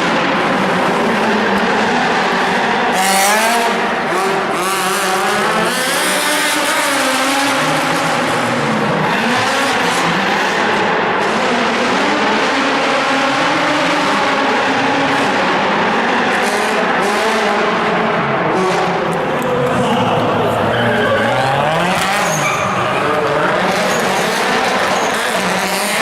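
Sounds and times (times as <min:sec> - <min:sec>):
car engine revving: 0:00.0 - 0:26.0
tyres squealing: 0:20.8 - 0:23.2.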